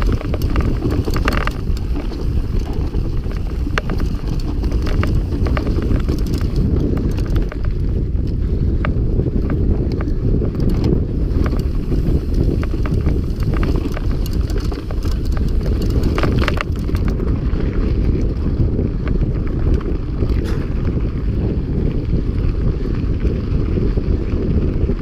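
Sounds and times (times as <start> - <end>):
bike rattling and clicking: 0.0 - 25.0
wind buffeting microphone: 0.0 - 25.0.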